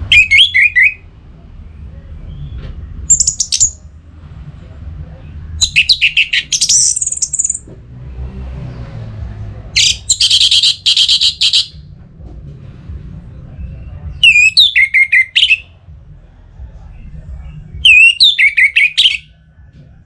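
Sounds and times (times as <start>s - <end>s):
steady low hum: 0.0s - 8.1s, 11.7s - 14.3s, 15.6s - 17.8s
thrush singing: 12.7s - 20.0s.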